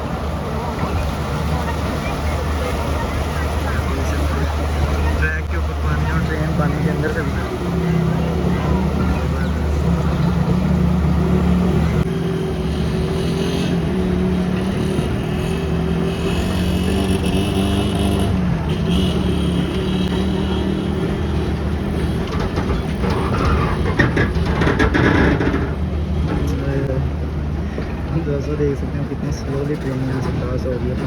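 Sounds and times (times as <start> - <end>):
train rattling clatter: 20.2 - 31.0.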